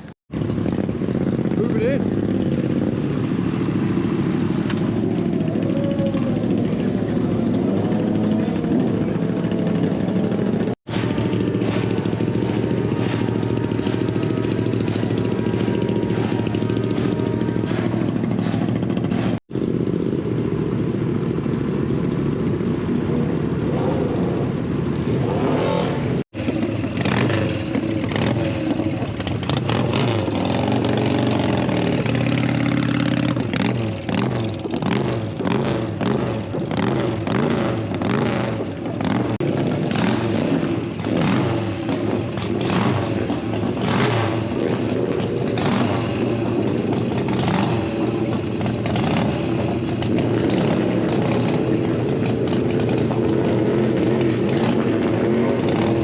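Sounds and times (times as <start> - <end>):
motorcycle engines revving: 0.0 - 56.0.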